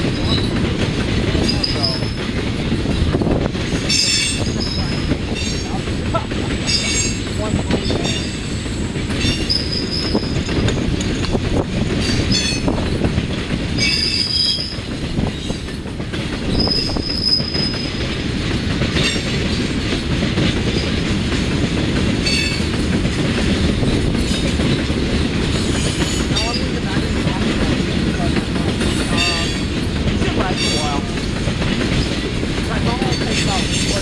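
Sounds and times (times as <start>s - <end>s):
train wheels rumbling on rail: 0.0s - 34.0s
high-pitched wheel squeals: 9.2s - 10.3s, 16.5s - 17.8s.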